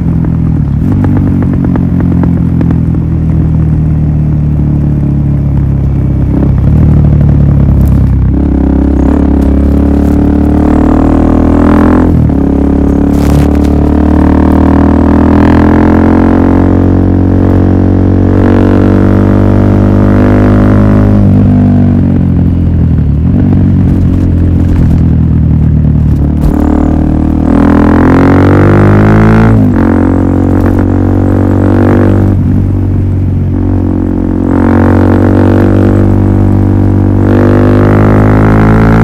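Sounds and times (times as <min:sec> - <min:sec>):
motorcycle engine droning: 0:00.0 - 0:39.0.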